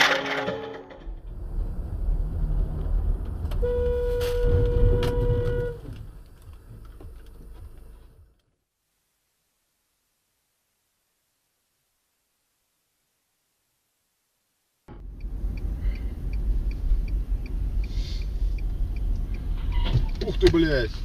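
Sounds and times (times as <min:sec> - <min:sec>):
moving car rumble: 0:00.0 - 0:08.6, 0:14.9 - 0:21.0
car horn: 0:03.5 - 0:06.1.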